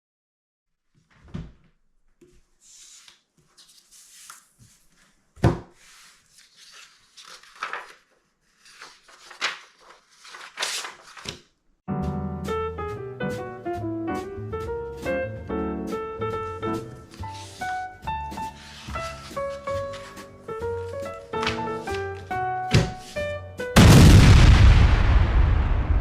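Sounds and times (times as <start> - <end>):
paper rustling and crinkling: 2.4 - 11.6, 16.5 - 23.3
jazz music with piano: 11.9 - 23.8.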